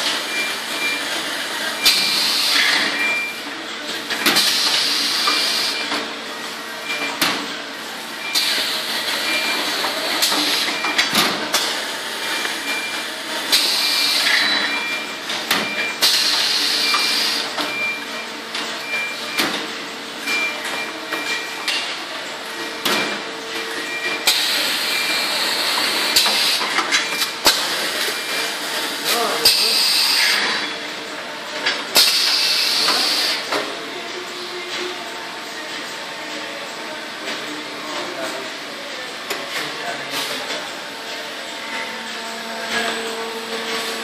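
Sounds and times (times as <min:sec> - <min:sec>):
machine clacks and knocks: 0:22.8 - 0:23.2
machine humming: 0:34.7 - 0:44.0.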